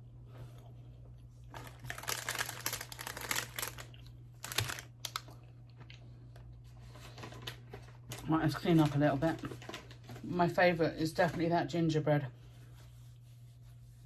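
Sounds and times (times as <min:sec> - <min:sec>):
packaging crinkling: 0:01.5 - 0:06.0.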